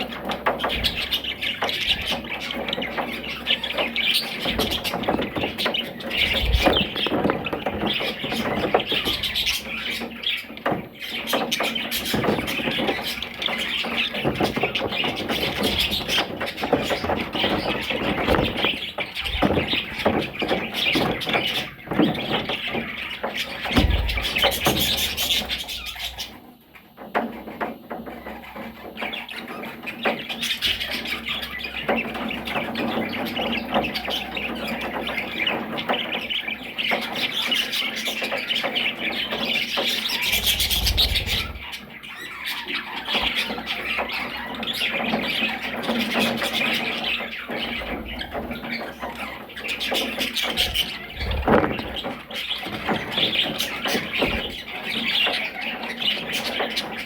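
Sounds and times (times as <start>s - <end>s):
parrots chattering and squawking: 0.0s - 57.0s
low thumps: 23.6s - 26.2s, 50.5s - 52.1s.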